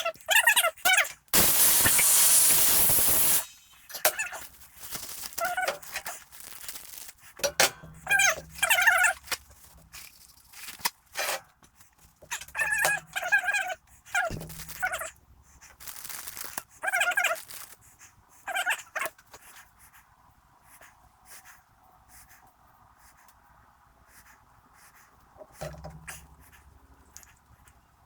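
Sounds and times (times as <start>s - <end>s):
compressed air blast: 1.4s - 4.2s
high squeaky cries: 5.3s - 6.1s, 16.8s - 17.7s.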